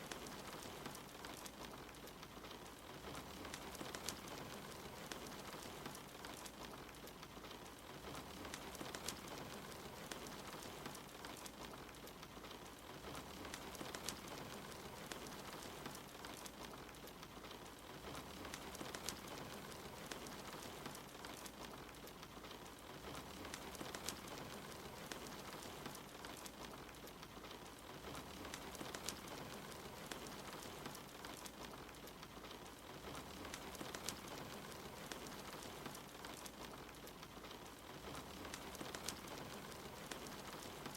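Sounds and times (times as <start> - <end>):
rain hiss: 0.0 - 40.9
wood fire crackling: 0.0 - 40.9.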